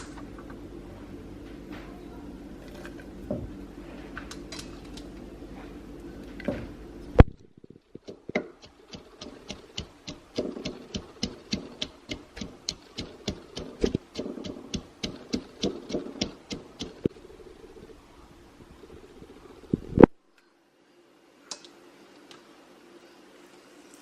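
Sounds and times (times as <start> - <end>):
rapid kitchen chopping strikes: 8.0 - 17.1
loud knock: 9.2 - 17.0.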